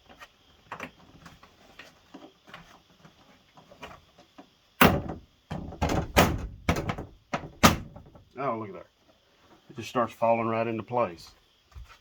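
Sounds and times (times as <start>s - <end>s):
door panel knocks and thumps: 4.8s - 8.3s.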